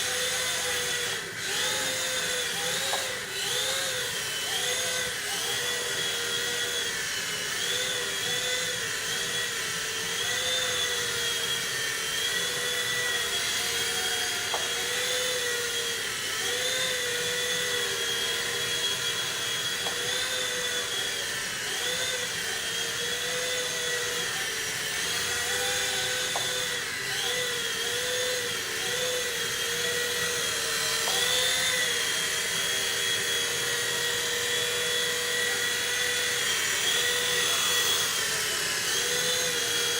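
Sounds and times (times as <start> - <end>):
small helicopter motor whine: 0.0 - 39.9.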